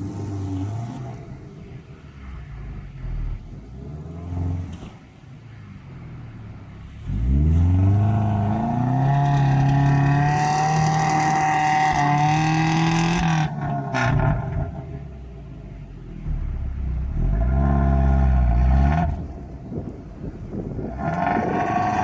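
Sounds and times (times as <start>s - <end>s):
engine revving: 6.0s - 22.0s.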